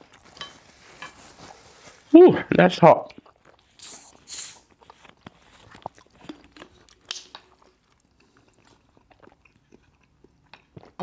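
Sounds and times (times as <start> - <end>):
chewing and mouth clicks: 3.0 - 11.0
bottle cap twisted open hiss: 3.8 - 4.6.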